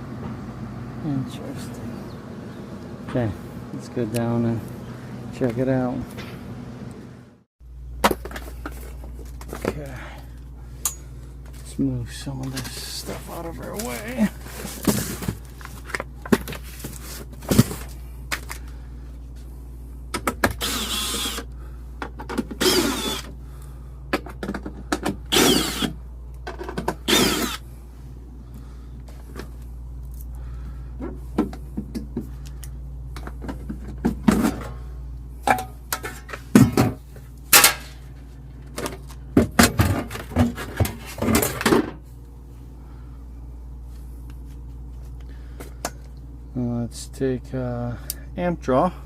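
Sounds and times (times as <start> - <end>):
steady low hum: 0.0 - 49.0
handling knocks and scrapes: 12.4 - 18.6, 36.0 - 42.0.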